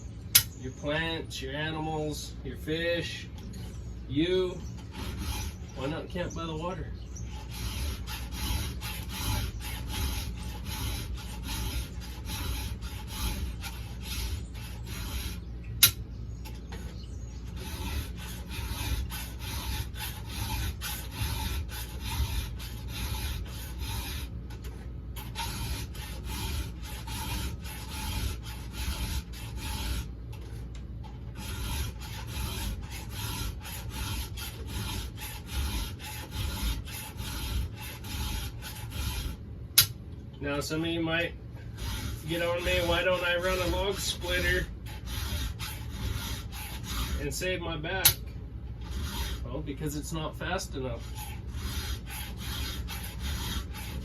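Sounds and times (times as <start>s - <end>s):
sharp click: 0.3s - 0.6s, 15.8s - 16.0s, 39.8s - 40.0s, 48.0s - 48.2s
file rasping on chainsaw chain: 4.2s - 16.0s, 17.5s - 30.6s, 31.3s - 39.9s, 41.7s - 48.2s, 48.8s - 54.0s.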